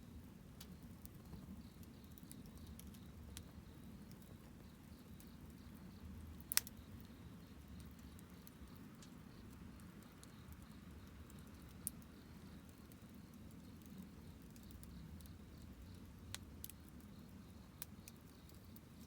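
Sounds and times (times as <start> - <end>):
burning wood crackles: 0.0 - 19.0
campfire low rush: 0.0 - 19.0.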